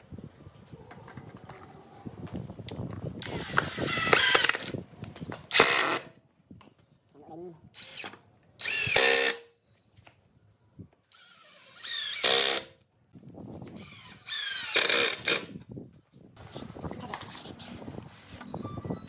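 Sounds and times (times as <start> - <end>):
power drill whining: 3.2 - 4.7, 7.8 - 9.4, 11.1 - 12.7, 13.7 - 15.5.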